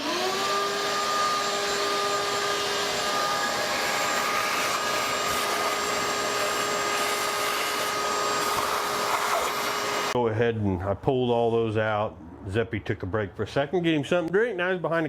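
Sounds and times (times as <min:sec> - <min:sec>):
vacuum cleaner motor whine: 0:00.0 - 0:10.2.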